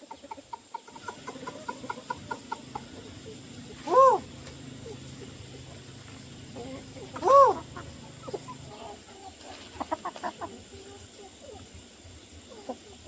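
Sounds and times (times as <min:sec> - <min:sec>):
chickens clucking: 0:00.0 - 0:13.0
chicken squawk: 0:00.3 - 0:05.7, 0:06.6 - 0:11.7.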